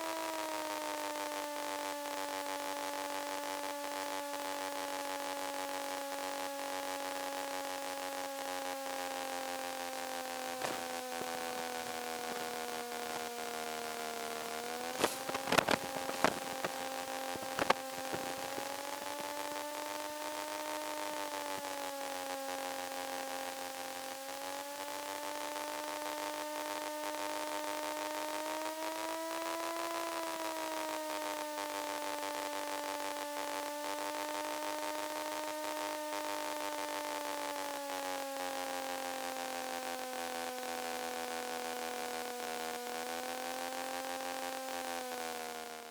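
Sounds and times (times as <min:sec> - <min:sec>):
light aircraft engine droning: 0:00.0 - 0:26.0.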